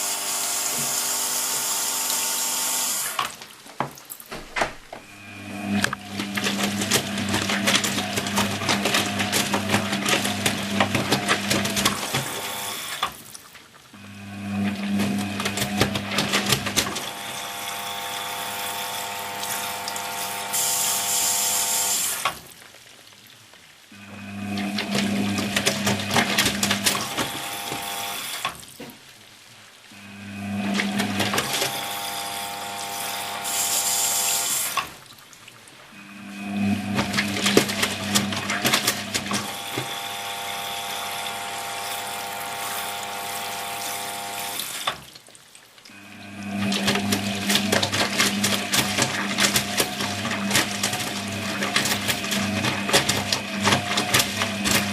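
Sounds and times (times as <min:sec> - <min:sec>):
washing machine whine: 0:00.0 - 0:22.6, 0:23.9 - 0:29.0, 0:29.9 - 0:45.2, 0:45.8 - 0:54.9
washing machine drum turning: 0:04.3 - 0:12.5, 0:36.4 - 0:40.7, 0:46.3 - 0:54.9.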